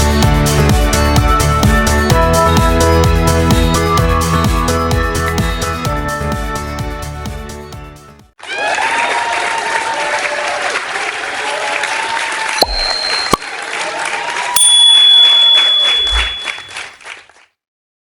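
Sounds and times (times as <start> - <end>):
crowd applauding and cheering: 8.4 - 14.6
bright ding tones: 12.6 - 13.6, 14.6 - 16.9.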